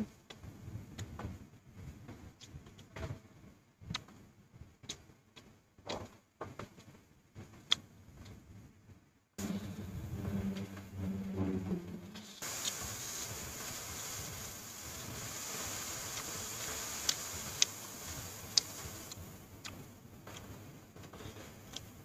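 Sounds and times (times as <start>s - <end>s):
steady hiss: 9.4s - 22.0s
mouth clicks: 15.8s - 20.5s
close-up chewing: 16.0s - 20.5s.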